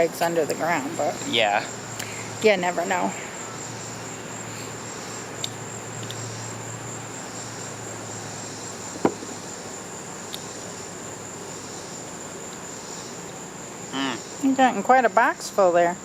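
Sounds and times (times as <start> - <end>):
crickets chirring: 0.0 - 16.0
sharp knock: 9.0 - 9.4.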